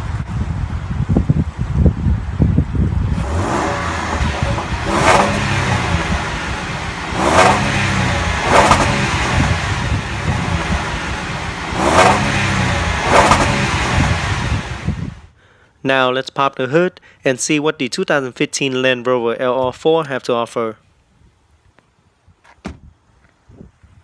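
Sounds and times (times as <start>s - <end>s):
car engine revving: 3.0s - 15.3s.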